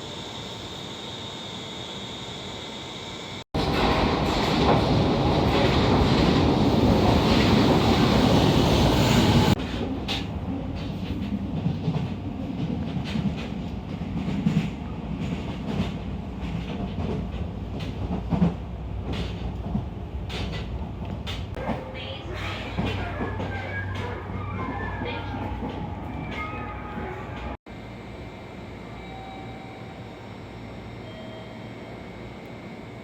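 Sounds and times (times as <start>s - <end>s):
train rumbling on rails: 3.6s - 28.0s.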